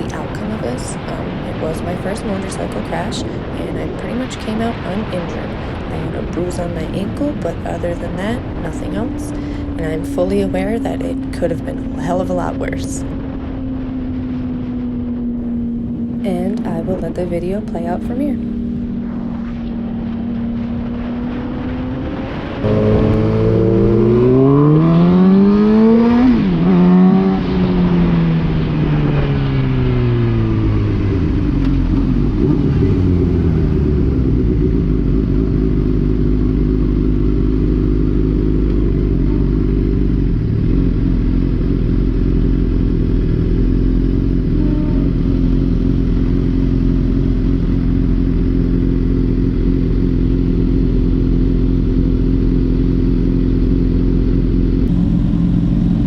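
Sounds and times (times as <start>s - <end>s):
wind rush: 0.0s - 26.8s
motorcycle engine accelerating: 0.0s - 56.0s.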